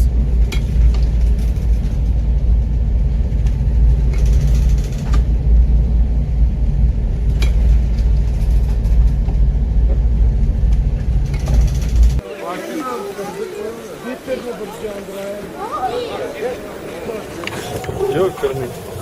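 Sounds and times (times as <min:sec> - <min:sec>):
ship engine rumble: 0:00.0 - 0:12.2.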